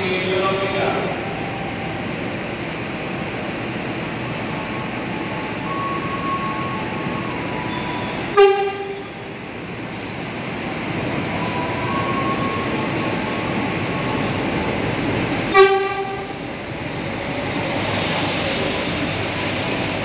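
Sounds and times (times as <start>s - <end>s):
train wheels rushing past: 2.6s - 20.0s
train horn blast: 8.1s - 9.2s, 15.5s - 16.3s.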